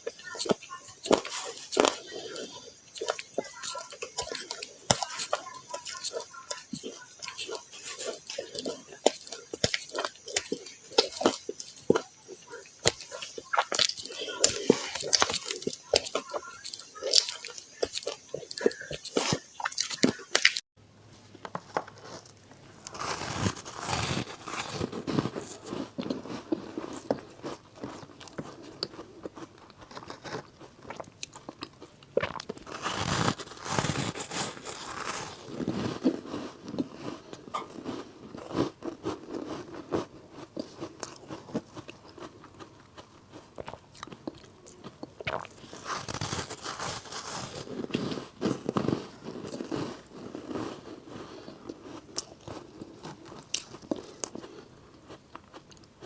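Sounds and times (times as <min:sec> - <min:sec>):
chewing crunches: 0:00.1 - 0:20.6, 0:21.5 - 0:56.0
ice crunching bites: 0:21.5 - 0:44.2, 0:44.8 - 0:55.9.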